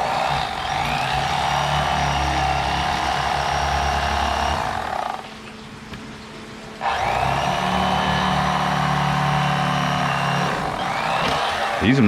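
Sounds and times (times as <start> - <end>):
electric fillet knife buzzing: 0.0 - 5.3, 6.8 - 12.0.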